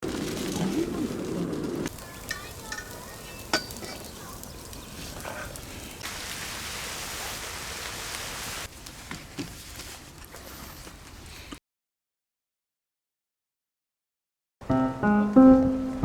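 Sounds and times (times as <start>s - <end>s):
food frying sizzle: 0.1s - 8.9s.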